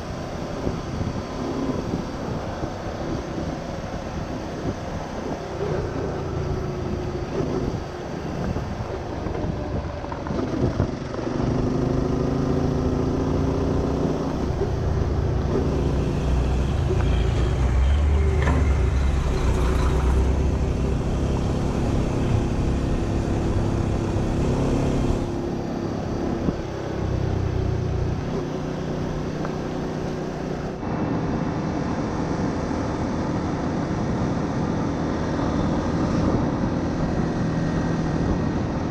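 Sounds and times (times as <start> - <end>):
motorcycle engine running: 0.0 - 30.8
wind and road noise: 0.0 - 38.9.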